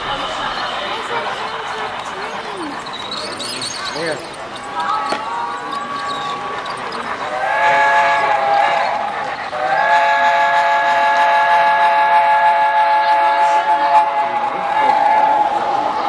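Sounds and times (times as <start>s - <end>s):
train horn chord blasts: 9.7s - 14.4s.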